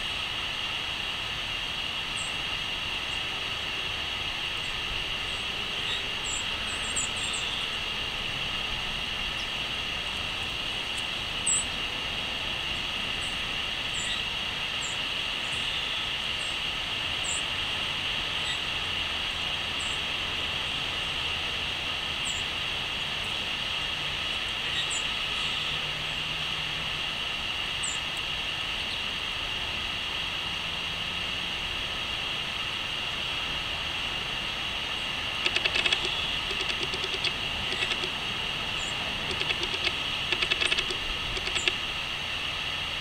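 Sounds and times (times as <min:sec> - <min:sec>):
steady background hiss: 0:00.0 - 0:43.0
small birds high-pitched calls: 0:02.1 - 0:02.4, 0:04.6 - 0:08.3, 0:10.9 - 0:11.8, 0:13.2 - 0:16.6, 0:17.2 - 0:17.5, 0:18.4 - 0:18.7, 0:19.8 - 0:20.1, 0:22.2 - 0:22.5, 0:24.3 - 0:25.8, 0:27.8 - 0:29.1, 0:35.0 - 0:41.9.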